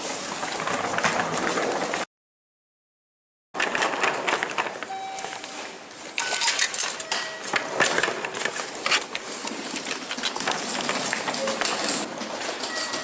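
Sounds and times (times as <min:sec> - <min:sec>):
clicks and clatter: 0:00.1 - 0:02.1, 0:03.6 - 0:13.0
short electronic beeps: 0:04.9 - 0:05.6, 0:06.2 - 0:07.6, 0:12.7 - 0:13.0.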